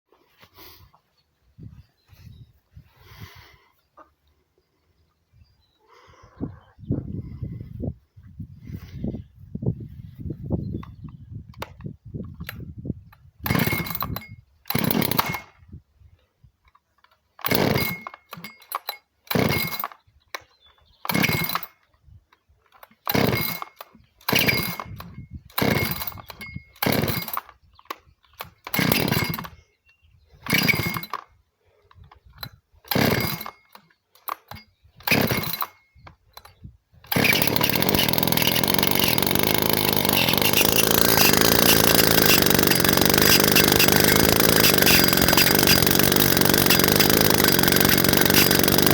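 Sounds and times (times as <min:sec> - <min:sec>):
chainsaw recoil starter pulls: 0:11.6 - 0:15.7, 0:16.6 - 0:48.9
chainsaw engine running: 0:13.4 - 0:15.5, 0:17.4 - 0:20.0, 0:21.1 - 0:21.8, 0:22.8 - 0:27.5, 0:28.3 - 0:29.6, 0:30.4 - 0:31.4, 0:32.4 - 0:48.9.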